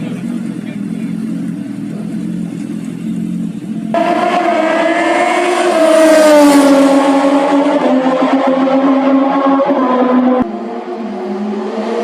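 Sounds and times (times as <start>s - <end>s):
motorcycle engines idling low: 0.0s - 4.0s.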